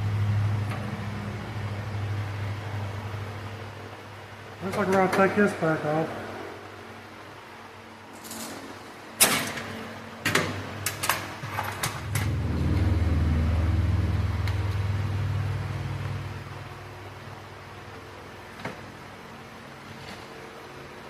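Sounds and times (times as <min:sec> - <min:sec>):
low engine rumble: 0:00.0 - 0:04.6, 0:11.7 - 0:19.4.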